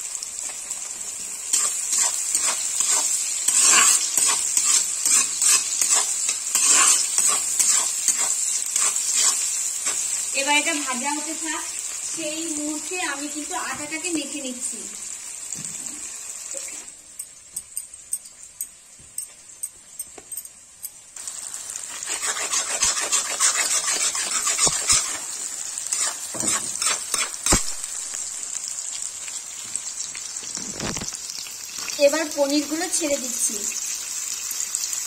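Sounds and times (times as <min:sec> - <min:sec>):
vegetables sizzling in hot oil: 0:00.0 - 0:20.0, 0:20.6 - 0:35.0
metal spatula scraping pan: 0:01.5 - 0:10.1, 0:21.9 - 0:25.3, 0:25.9 - 0:27.6.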